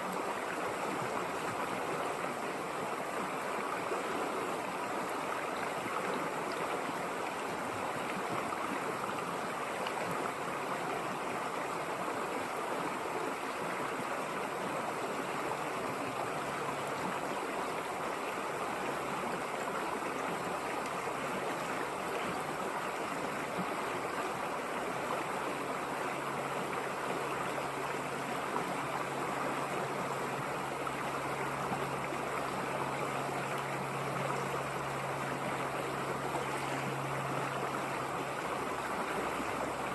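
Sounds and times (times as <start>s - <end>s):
river water rushing: 0.0s - 39.9s
faint low hum: 15.4s - 39.9s.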